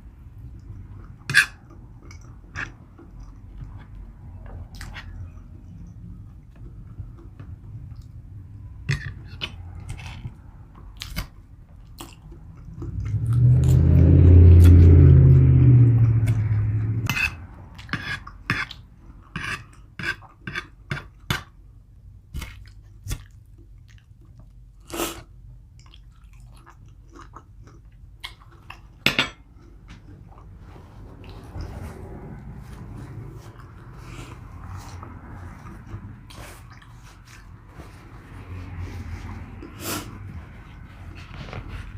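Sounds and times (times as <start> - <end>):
chewing and biting food: 8.9 - 13.9, 22.4 - 24.8, 25.7 - 41.9
loud low drawn-out sound: 13.0 - 17.7.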